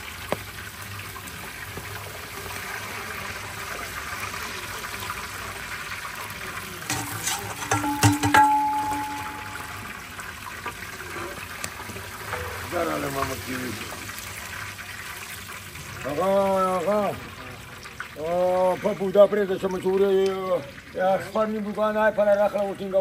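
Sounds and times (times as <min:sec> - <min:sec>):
chicken sizzling in a pot: 0:00.0 - 0:23.0
metal clanks: 0:06.9 - 0:10.0.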